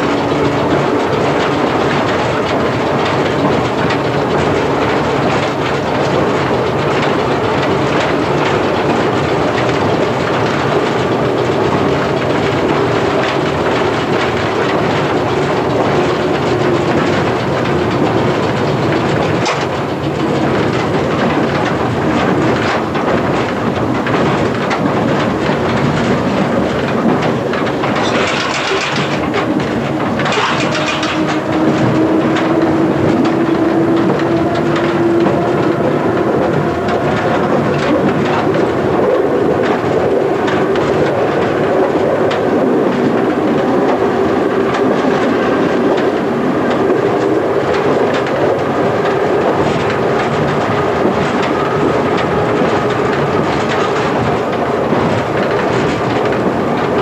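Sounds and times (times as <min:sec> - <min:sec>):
rail joint clicks: 0:00.0 - 0:57.0
train wheels rumbling on rails: 0:00.0 - 0:57.0.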